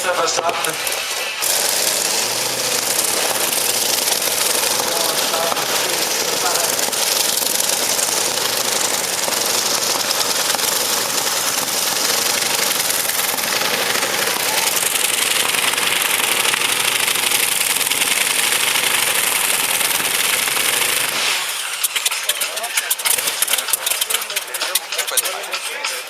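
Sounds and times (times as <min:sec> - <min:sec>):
tractor engine running flat out: 0:00.0 - 0:26.0.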